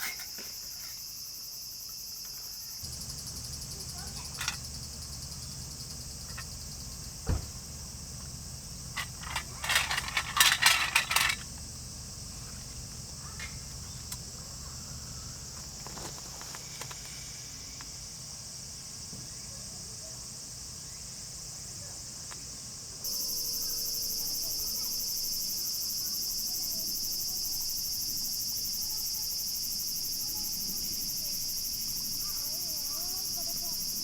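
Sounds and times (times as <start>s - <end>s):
insects chirring: 0.0s - 34.0s
sharp clicks and clatter: 4.2s - 4.7s, 9.0s - 11.6s
dull thump: 7.1s - 7.8s.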